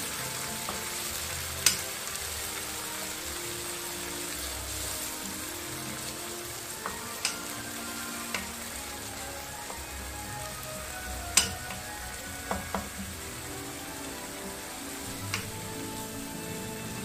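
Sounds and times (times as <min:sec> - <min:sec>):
vegetables sizzling in oil: 0:00.0 - 0:17.0
spatula clicking against pan: 0:01.6 - 0:01.8, 0:06.8 - 0:07.5, 0:08.3 - 0:08.5, 0:11.3 - 0:12.9.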